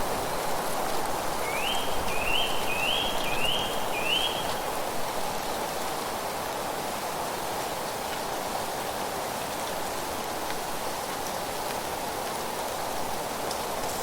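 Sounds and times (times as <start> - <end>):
wind through leaves: 0.0 - 14.0
bird whistling calls: 1.4 - 4.6.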